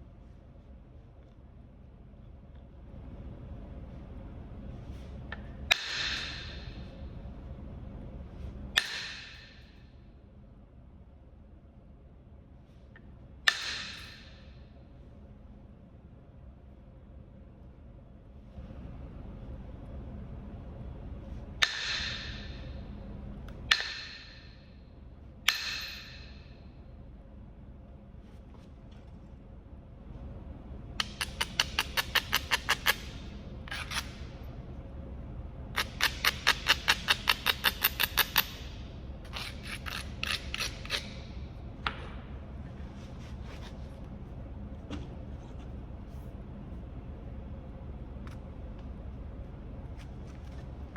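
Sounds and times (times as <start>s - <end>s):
tool clicking against stone: 5.7s - 6.6s, 8.8s - 9.6s, 13.5s - 14.3s, 21.6s - 22.5s, 23.7s - 24.4s, 25.5s - 26.3s, 31.0s - 34.2s, 35.8s - 38.7s, 39.3s - 41.2s.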